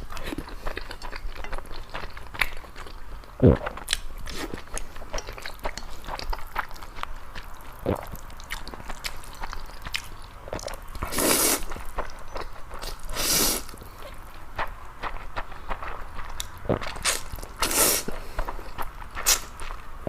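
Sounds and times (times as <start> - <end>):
close-miked chewing and biting: 0.0 - 20.0
wet mouth clicks: 19.2 - 19.5.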